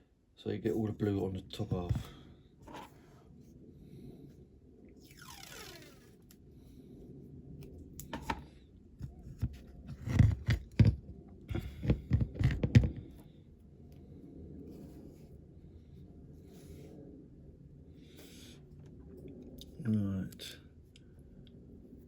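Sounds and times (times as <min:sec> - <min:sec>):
short falling squeal: 0:05.0 - 0:06.1
handling clicks and thumps: 0:09.0 - 0:13.2.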